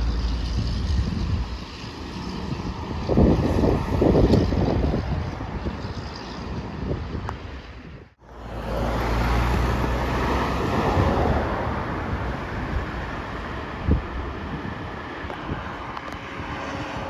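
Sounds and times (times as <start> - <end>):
heavy engine drone: 0.0 - 4.6
road noise: 0.0 - 17.0
trucks passing: 0.0 - 17.0
wind on microphone: 0.0 - 17.0.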